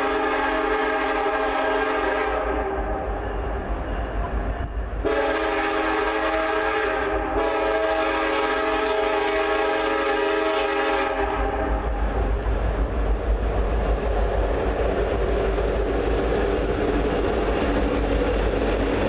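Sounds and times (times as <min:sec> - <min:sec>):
locomotive air horn blasts: 0:00.0 - 0:03.0, 0:05.0 - 0:11.9
train rumbling: 0:00.0 - 0:19.0.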